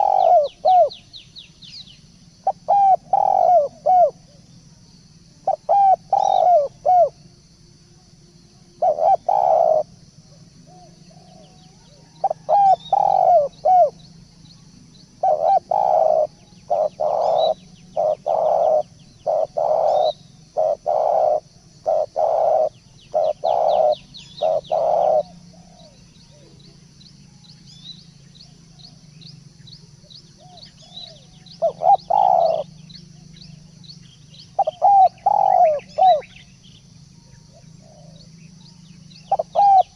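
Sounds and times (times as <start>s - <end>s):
turtledove cooing: 0.0s - 0.9s, 2.4s - 4.2s, 8.8s - 9.9s, 12.2s - 14.0s, 15.2s - 26.7s, 31.6s - 32.7s, 34.6s - 36.3s, 39.3s - 39.9s
small birds chirping: 0.0s - 7.2s, 7.8s - 39.9s
low steady hum: 0.0s - 39.9s.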